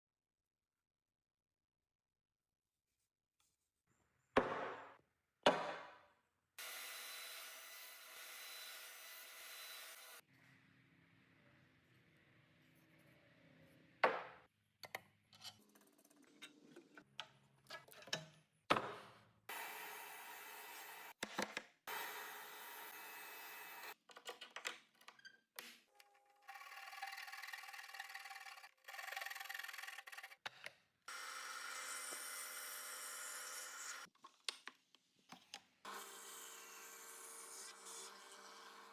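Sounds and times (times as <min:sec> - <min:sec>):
power tool whirring on wood: 0:06.6 - 0:10.2, 0:21.9 - 0:24.0, 0:31.1 - 0:34.1, 0:35.9 - 0:38.9.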